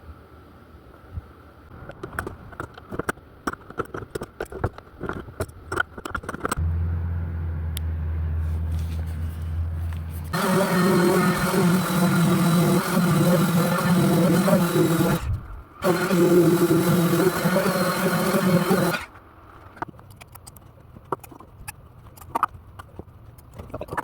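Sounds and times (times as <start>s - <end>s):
engine running: 6.6s - 19.1s
steady low hum: 6.6s - 19.5s.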